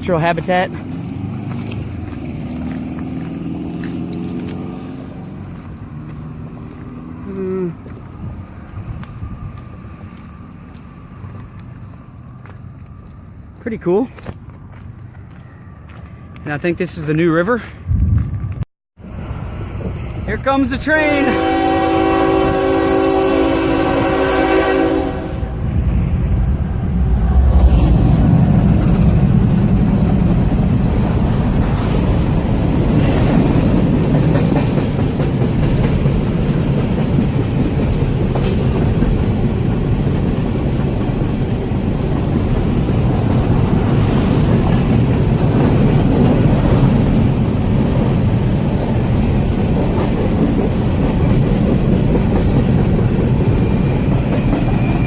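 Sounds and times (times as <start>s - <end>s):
train wheels rumbling on rails: 0.0s - 13.4s, 17.6s - 55.0s
train horn chord: 21.1s - 25.6s.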